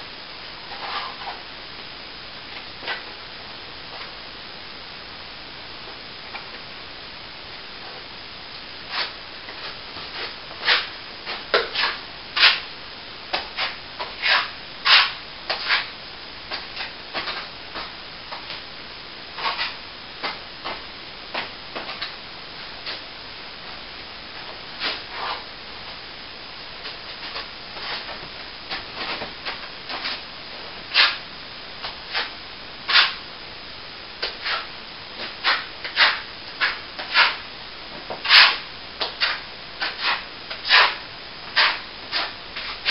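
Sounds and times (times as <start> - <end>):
faint hiss: 0.0 - 42.9
hand tool scraping plaster wall: 0.7 - 1.4, 8.9 - 11.0, 11.6 - 12.7, 13.4 - 15.9, 19.4 - 19.8, 30.9 - 31.2, 32.1 - 32.3, 32.9 - 33.2, 34.2 - 37.4, 38.1 - 42.9.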